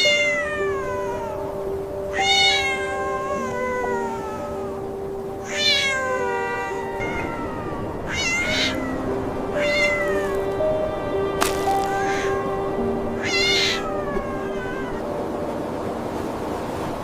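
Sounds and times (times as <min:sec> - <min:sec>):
cat meowing: 0:00.0 - 0:01.4, 0:02.1 - 0:04.8, 0:05.4 - 0:10.5, 0:11.8 - 0:12.6, 0:13.2 - 0:15.1
background music: 0:00.0 - 0:17.0.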